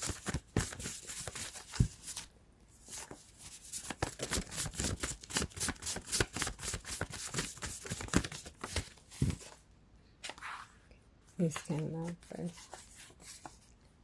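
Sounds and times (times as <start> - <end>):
cards being shuffled: 0.0 - 2.3, 2.9 - 9.6.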